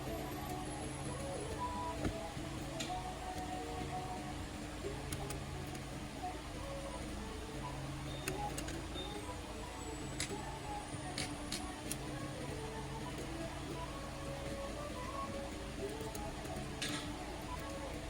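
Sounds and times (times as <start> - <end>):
steady low hum: 0.0 - 18.0
sharp light clicks: 11.0 - 12.1.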